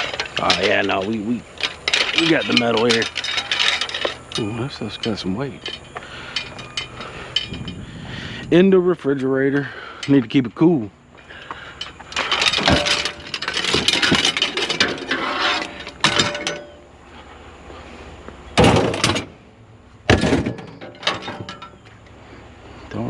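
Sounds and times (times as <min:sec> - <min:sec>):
scrap metal clattering: 0:00.0 - 0:08.6, 0:11.3 - 0:16.9, 0:18.6 - 0:19.4, 0:20.1 - 0:22.1.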